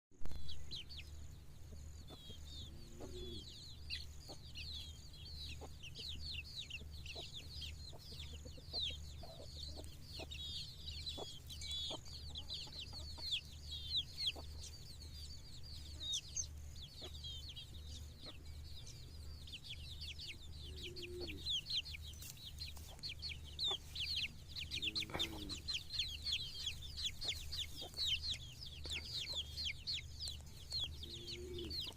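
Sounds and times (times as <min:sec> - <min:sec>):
hen clucking softly: 0:01.8 - 0:04.6, 0:05.5 - 0:14.9, 0:17.0 - 0:17.2, 0:20.7 - 0:31.9
rapid high-pitched chirping: 0:03.7 - 0:31.9.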